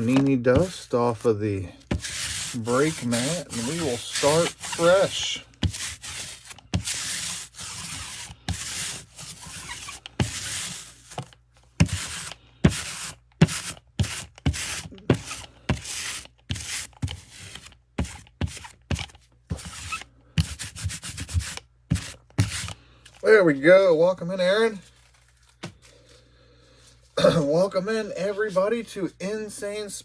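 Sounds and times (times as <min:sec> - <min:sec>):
lint roller rubbing strokes: 0:00.0 - 0:18.7, 0:19.5 - 0:22.8.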